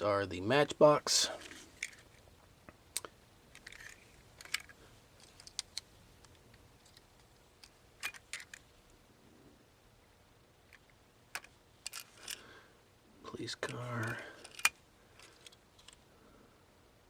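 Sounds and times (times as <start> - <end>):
toy cars clicking and tapping: 3.0 - 8.6, 13.6 - 16.0.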